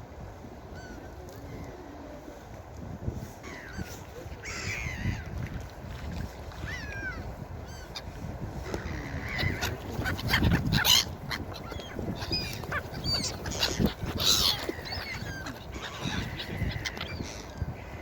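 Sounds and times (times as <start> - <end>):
gulls calling: 6.5 - 18.0.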